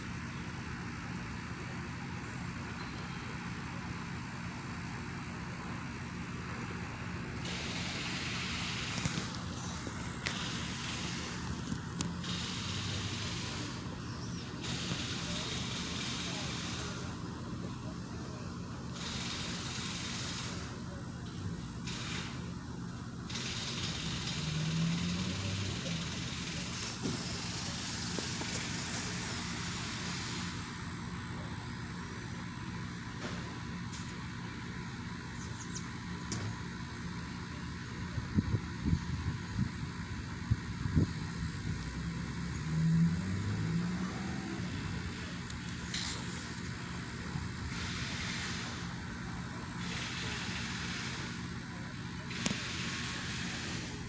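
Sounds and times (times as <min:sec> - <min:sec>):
industrial grinding hum: 0:00.0 - 0:54.0
harsh hiss: 0:07.4 - 0:21.0, 0:23.3 - 0:31.1, 0:42.2 - 0:54.0
low mechanical grinding drone: 0:38.1 - 0:54.0
vehicle rushing by: 0:41.9 - 0:45.2.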